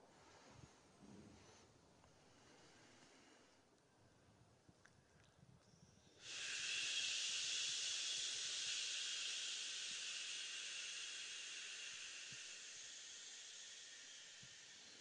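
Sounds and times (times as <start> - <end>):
exhaled breath hissing: 6.1 - 15.0.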